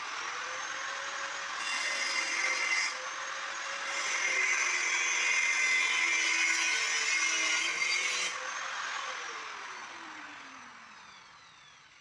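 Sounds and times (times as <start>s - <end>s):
motor winding down whine: 0.0s - 1.6s, 8.3s - 12.0s
angle grinder cutting metal: 0.0s - 9.8s.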